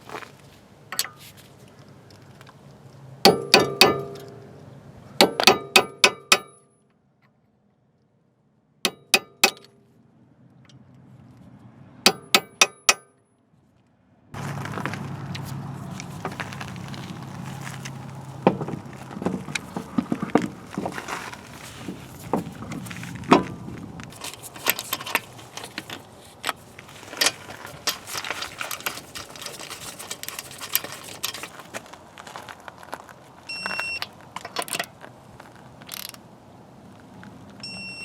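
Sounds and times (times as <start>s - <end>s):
ringing metal-on-metal strikes: 3.3s - 4.5s, 5.2s - 6.7s, 12.1s - 13.2s.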